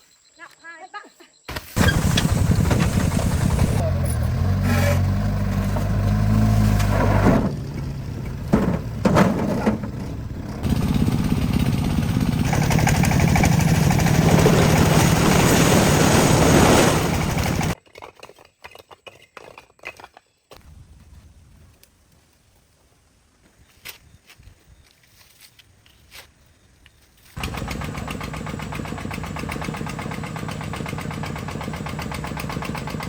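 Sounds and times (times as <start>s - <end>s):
truck engine running: 1.8s - 17.8s, 27.4s - 33.0s.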